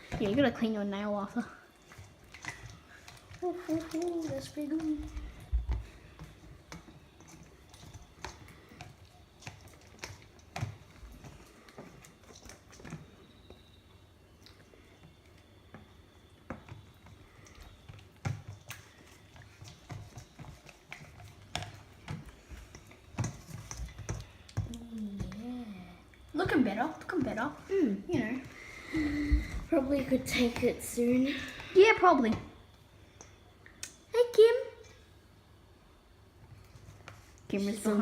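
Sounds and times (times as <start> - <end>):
slime squelching: 0.0 - 13.7.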